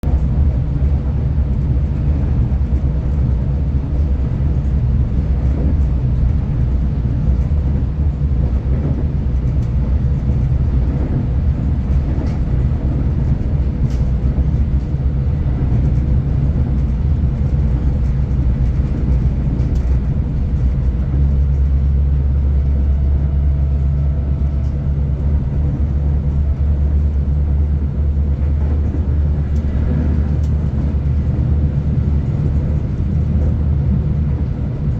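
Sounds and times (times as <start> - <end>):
train rumbling from on board: 0.0 - 34.9.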